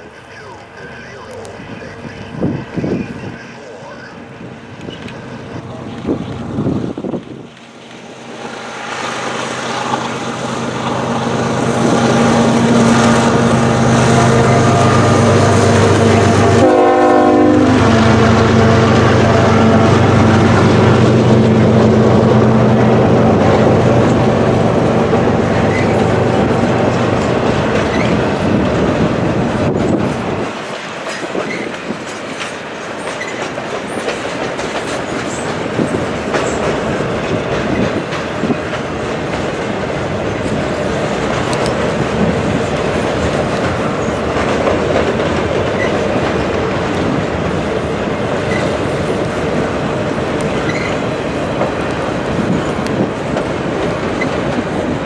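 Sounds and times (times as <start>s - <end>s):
diesel locomotive engines: 0.0s - 55.0s
wheels clattering over rail joints: 20.0s - 55.0s.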